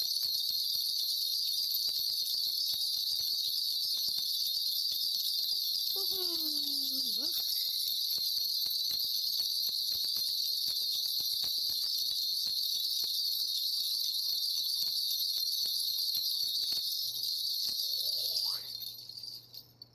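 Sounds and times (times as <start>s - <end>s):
ritual bells jingling: 5.6s - 9.6s, 12.9s - 19.9s
woman calling: 6.0s - 7.5s.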